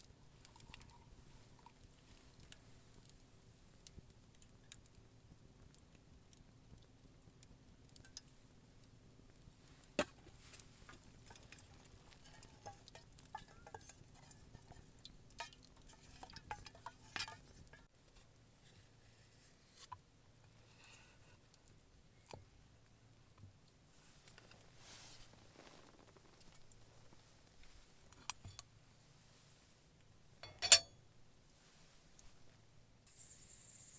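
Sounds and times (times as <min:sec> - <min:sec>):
utensils clinking against pots: 0:11.1 - 0:17.9, 0:30.4 - 0:30.9.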